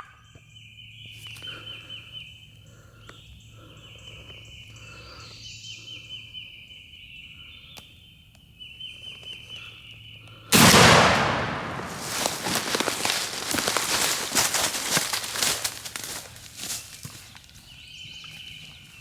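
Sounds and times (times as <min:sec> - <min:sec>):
shotgun blast: 0:10.6 - 0:14.0
rustling in dry leaves: 0:10.7 - 0:17.7.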